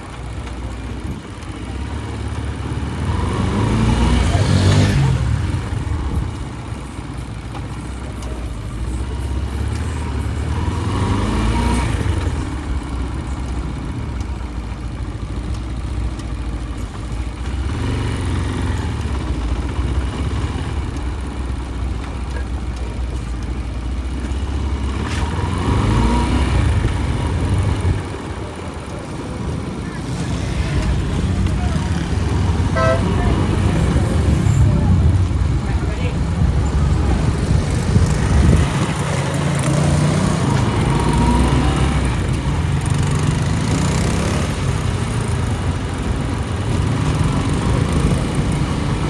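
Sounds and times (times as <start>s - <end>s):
motorcycle engine accelerating: 0.0s - 49.0s.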